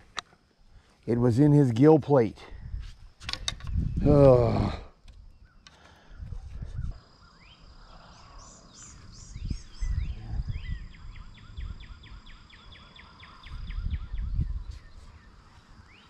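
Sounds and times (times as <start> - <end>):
birds calling: 3.3 - 16.0
low rumble on microphone: 3.6 - 5.4, 6.2 - 7.0, 7.8 - 12.1, 13.4 - 15.3.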